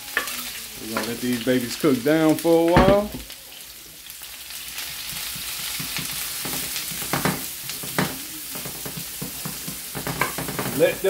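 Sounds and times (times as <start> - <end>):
mushrooms and onions sizzling in oil: 0.0 - 11.0
loud knocks: 2.8 - 3.2
wooden spoon stirring: 4.8 - 10.8.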